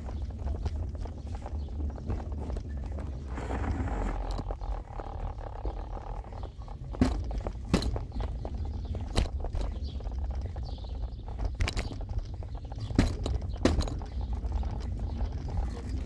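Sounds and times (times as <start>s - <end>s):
car road and engine rumble: 0.0s - 16.0s
knocks from road bumps: 6.8s - 10.7s, 11.4s - 14.2s.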